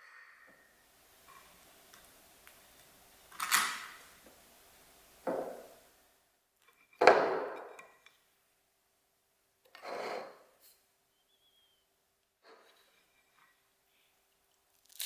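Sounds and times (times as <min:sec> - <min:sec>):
tableware knocking: 0:05.3 - 0:05.7, 0:07.0 - 0:07.8.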